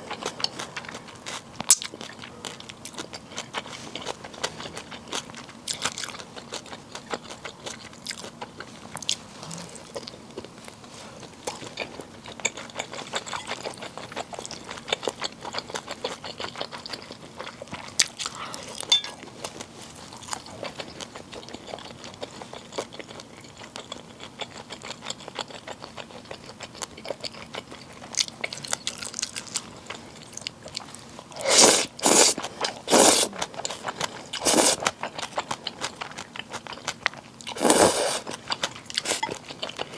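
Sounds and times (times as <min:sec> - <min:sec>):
wet chewing with crunches: 0:00.0 - 0:39.9
noodles slurped: 0:37.5 - 0:38.3.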